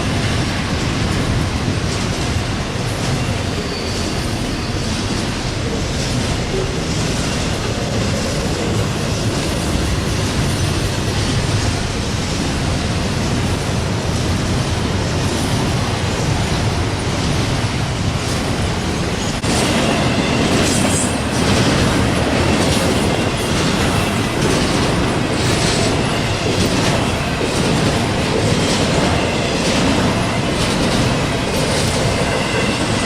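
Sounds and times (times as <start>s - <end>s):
freight train rumbling past: 0.0s - 33.0s
faint high wheel squeal: 3.2s - 5.0s.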